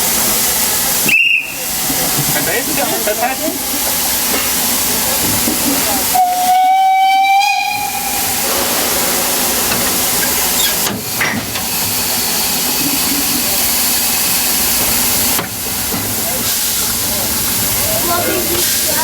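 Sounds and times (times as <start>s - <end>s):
hiss of escaping steam: 0.2s - 19.0s
steam locomotive whistle: 1.0s - 1.7s, 6.1s - 10.8s.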